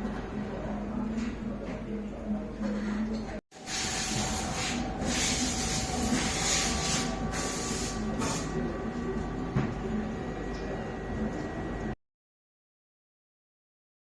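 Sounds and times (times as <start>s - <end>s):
machine hissing: 3.6s - 8.6s
machine humming: 3.6s - 12.0s.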